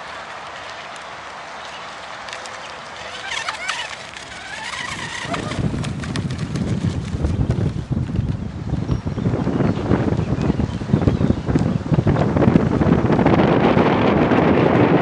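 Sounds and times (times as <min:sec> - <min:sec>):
wind buffeting microphone: 0:02.2 - 0:15.0.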